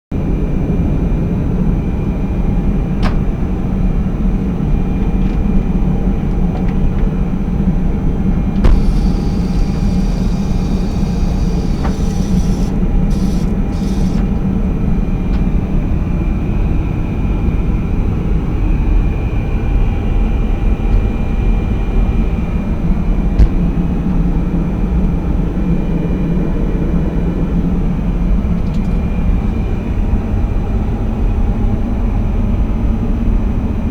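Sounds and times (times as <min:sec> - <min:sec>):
airliner cabin rumble: 0:01.2 - 0:25.5
short hisses: 0:08.6 - 0:14.3
click: 0:08.6 - 0:14.4, 0:28.6 - 0:29.6
vacuum toilet flushing: 0:08.6 - 0:14.4.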